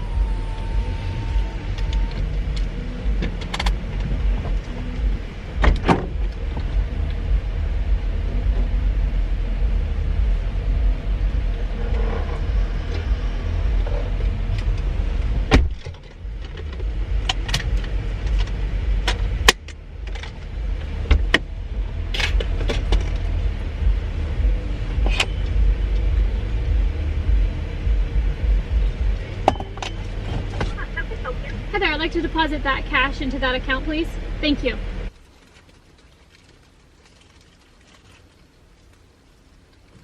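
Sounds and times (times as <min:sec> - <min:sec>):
car engine and road rumble: 0:00.0 - 0:40.0
sharp clicks and knocks: 0:01.3 - 0:07.2, 0:11.8 - 0:21.5, 0:22.1 - 0:23.4.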